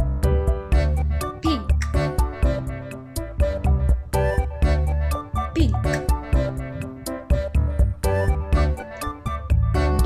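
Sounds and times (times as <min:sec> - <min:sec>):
bouncy children's music: 0:00.0 - 0:10.0
person speaking: 0:01.4 - 0:02.1, 0:05.5 - 0:06.1.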